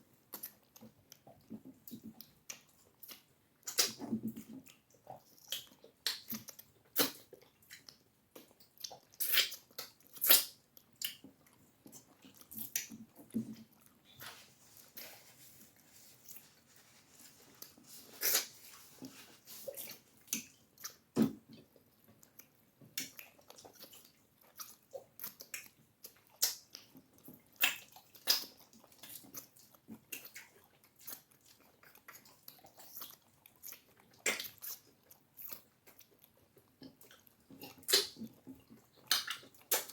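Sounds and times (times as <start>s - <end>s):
chewing and mouth sounds: 0.3s - 39.9s.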